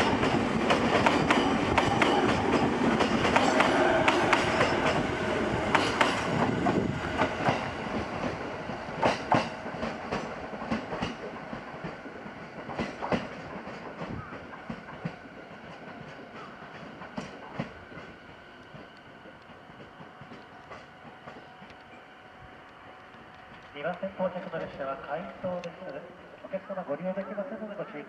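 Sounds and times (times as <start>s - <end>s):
wheels clacking over rail joints: 0.0s - 5.1s
electric train rolling on rails: 0.0s - 28.0s.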